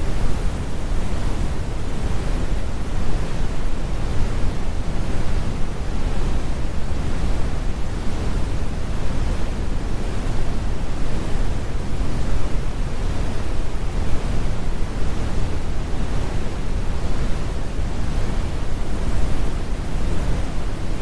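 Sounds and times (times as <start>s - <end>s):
brown noise rumbling hiss: 0.0s - 21.0s.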